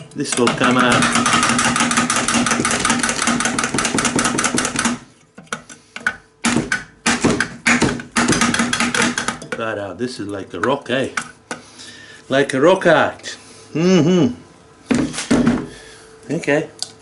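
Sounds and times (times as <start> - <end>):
hammering on rock: 6.4 - 9.4
knocks and clatters: 6.5 - 9.6.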